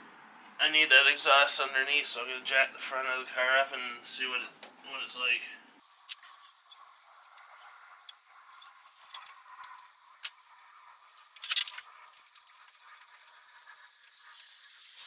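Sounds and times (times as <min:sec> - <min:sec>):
metal tools clinking and rattling: 0:05.8 - 0:15.0
metal clank: 0:05.9 - 0:10.6, 0:11.2 - 0:13.0
small clicks: 0:05.9 - 0:15.0.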